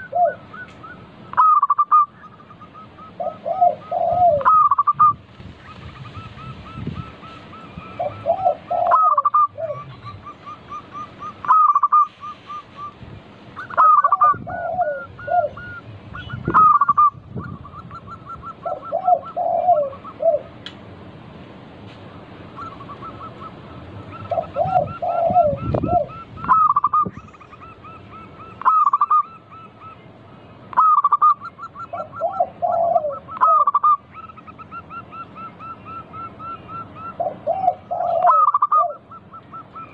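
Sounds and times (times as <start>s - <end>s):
doves cooing: 0.0s - 20.6s, 22.4s - 39.9s.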